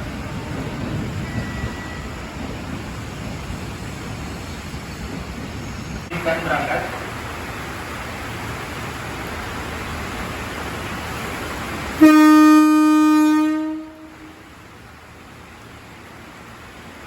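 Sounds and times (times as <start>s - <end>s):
steady hiss: 0.0s - 12.2s
train horn long toot: 12.0s - 14.5s.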